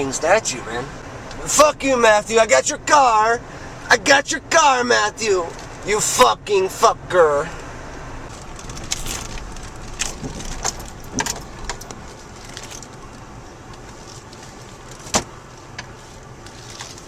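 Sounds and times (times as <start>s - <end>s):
car cabin rumble: 7.9s - 16.8s.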